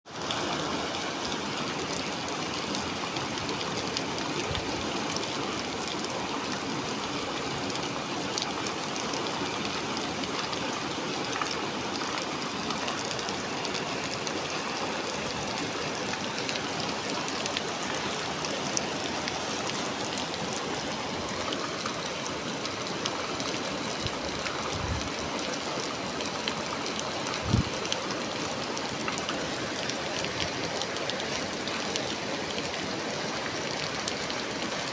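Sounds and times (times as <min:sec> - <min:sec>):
heavy rain hissing: 0:13.3 - 0:34.9.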